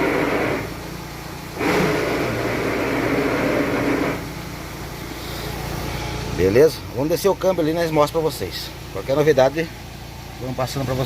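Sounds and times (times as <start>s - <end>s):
strange noise from clutch: 0.0s - 0.9s, 1.5s - 4.4s
engine idling: 0.0s - 11.0s.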